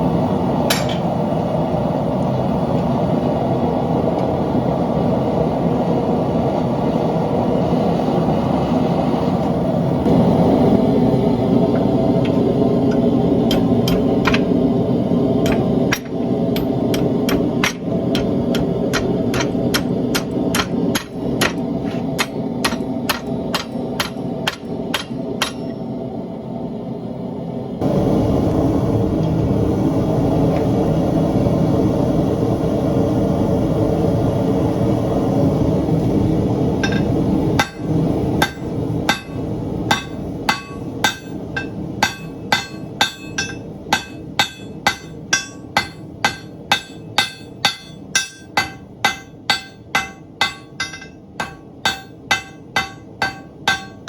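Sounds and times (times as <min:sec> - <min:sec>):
hammer striking hot metal: 0:00.7 - 0:01.2, 0:11.7 - 0:14.7, 0:15.4 - 0:25.8, 0:36.8 - 0:54.0
forge roaring: 0:07.9 - 0:25.6.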